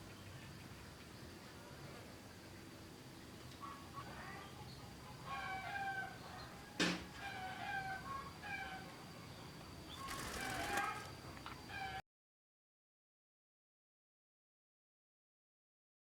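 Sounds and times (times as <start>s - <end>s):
chicken calling: 10.0s - 11.1s.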